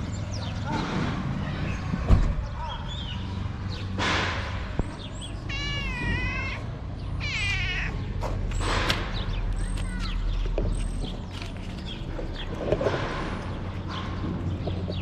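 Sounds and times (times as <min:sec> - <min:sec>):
cat meowing: 0:05.3 - 0:08.2.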